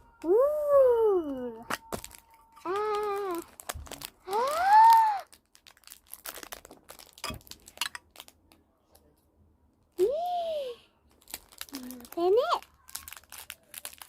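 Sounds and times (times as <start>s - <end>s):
plastic packaging crinkling: 1.3s - 8.6s, 11.1s - 14.0s
child exclaiming: 4.3s - 5.3s.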